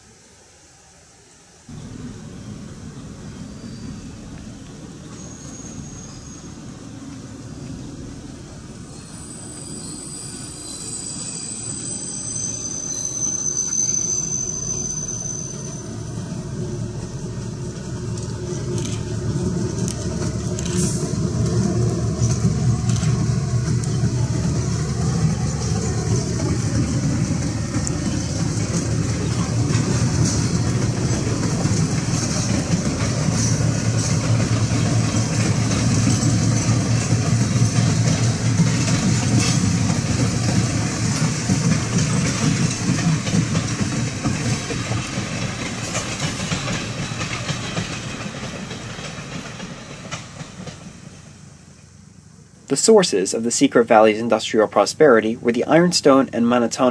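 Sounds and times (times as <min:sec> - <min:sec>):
train rumbling: 0:01.6 - 0:56.9.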